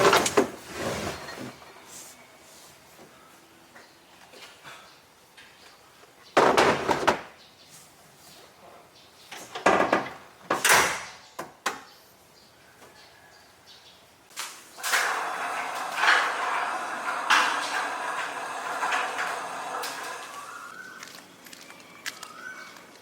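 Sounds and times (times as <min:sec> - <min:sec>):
knocks and scrapes of doors: 0:00.0 - 0:01.5, 0:06.4 - 0:07.4, 0:09.5 - 0:11.8.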